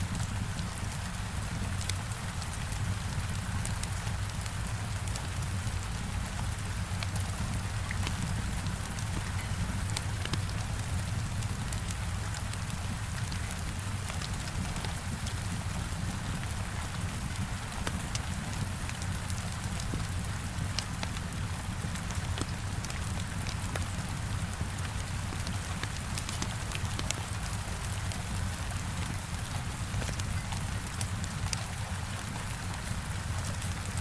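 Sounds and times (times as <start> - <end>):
heavy rain against a window: 0.0 - 34.0
wood fire crackling: 2.6 - 34.0.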